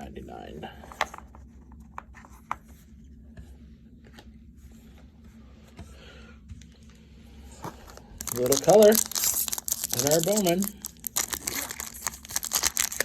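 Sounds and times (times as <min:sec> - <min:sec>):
low room hum: 0:00.0 - 0:13.0
cards and wrappers rustling: 0:07.6 - 0:13.0.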